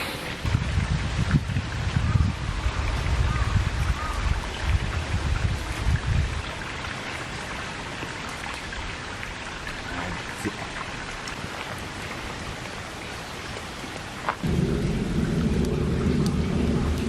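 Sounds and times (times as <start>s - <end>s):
low rumbling on microphone: 0.0s - 6.4s, 14.4s - 17.0s
steady rain: 0.0s - 17.0s.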